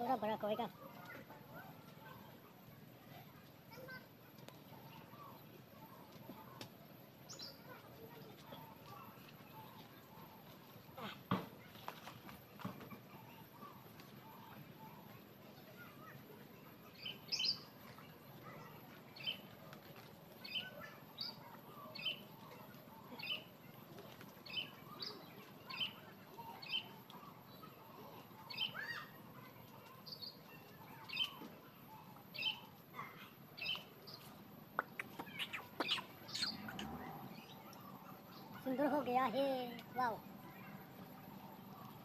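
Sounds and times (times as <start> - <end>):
outdoor background noise: 0.0 - 42.0
bird chirping: 33.6 - 39.0.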